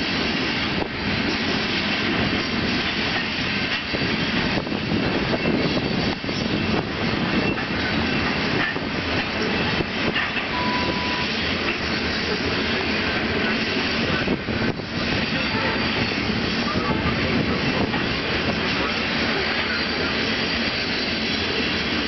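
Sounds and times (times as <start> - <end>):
train wheels rumbling on rails: 0.0 - 22.0
wheels clicking over rail joints: 2.2 - 10.6.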